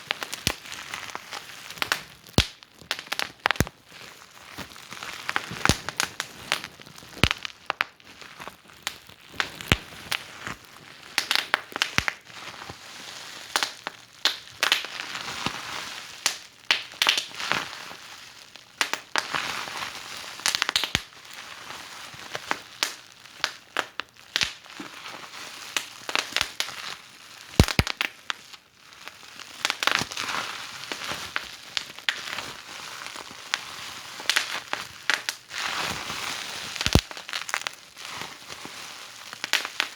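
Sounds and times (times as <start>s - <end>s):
fire pops and snaps: 0.0s - 3.8s, 4.6s - 10.6s, 11.2s - 12.2s, 13.5s - 15.0s, 16.2s - 17.4s, 18.8s - 19.4s, 20.4s - 21.1s, 22.4s - 24.7s, 25.8s - 26.7s, 27.5s - 28.4s, 29.6s - 30.2s, 34.2s - 35.4s, 36.7s - 37.8s, 39.3s - 39.9s
wood fire crackling: 0.0s - 12.7s, 13.5s - 15.0s, 16.2s - 17.3s, 18.8s - 19.2s, 22.1s - 24.7s, 27.4s - 28.4s, 33.1s - 35.4s, 36.7s - 37.8s, 39.2s - 39.9s.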